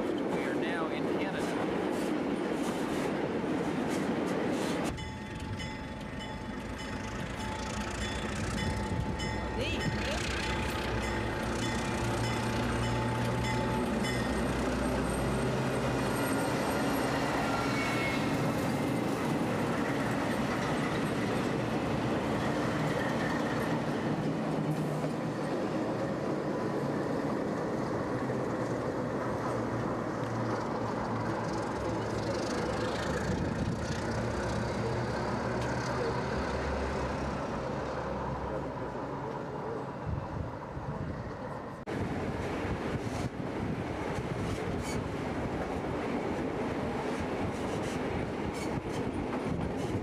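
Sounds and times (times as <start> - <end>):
diesel locomotive droning: 0.0 - 50.0
train rumbling on rails: 0.0 - 50.0.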